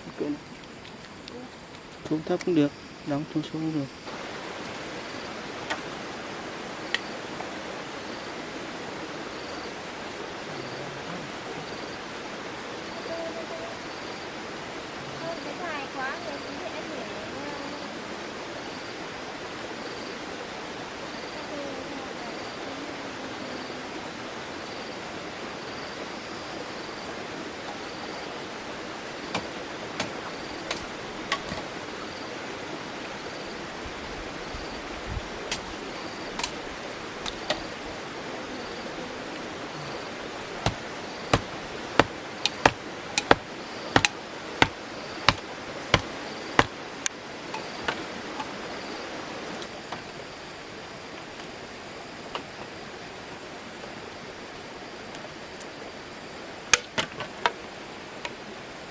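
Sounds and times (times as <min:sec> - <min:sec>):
sharp knocks: 0:40.6 - 0:46.8.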